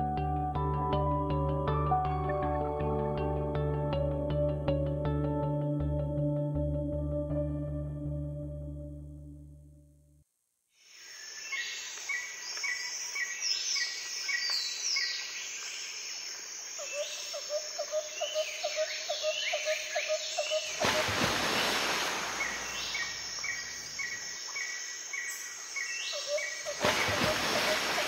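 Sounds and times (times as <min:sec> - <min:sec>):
birds and insects chirping: 0:10.8 - 0:28.0.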